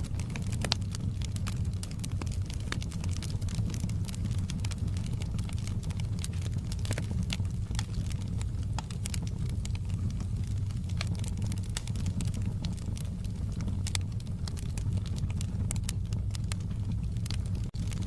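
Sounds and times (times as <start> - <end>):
fire crackling and popping: 0.0 - 18.0
wood fire low rumble: 0.0 - 18.0.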